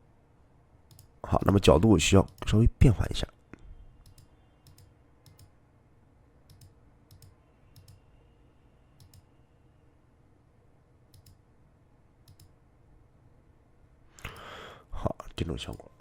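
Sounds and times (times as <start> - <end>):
low room hum: 0.0 - 16.0
computer mouse clicks: 0.9 - 1.2, 4.0 - 5.6, 6.5 - 8.1, 9.0 - 9.3, 11.1 - 11.4, 12.2 - 12.6, 14.2 - 14.5.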